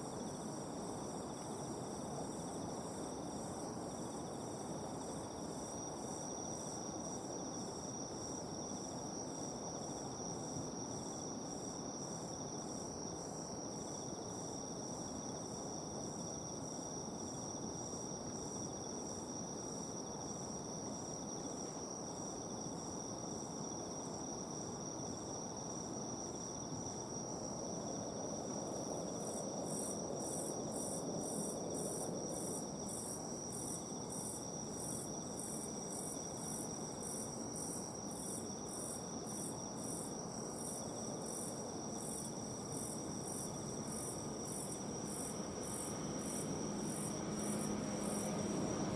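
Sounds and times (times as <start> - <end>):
faint low background noise: 0.0 - 48.9
pulsing insect chirp: 0.0 - 48.9
insect high trill: 42.0 - 48.9.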